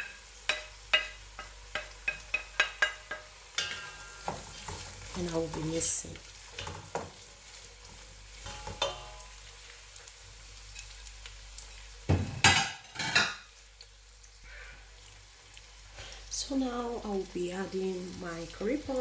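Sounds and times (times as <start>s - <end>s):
vegetables sizzling in oil: 0.0s - 19.0s
wooden spoon knocking on pot: 0.5s - 4.5s.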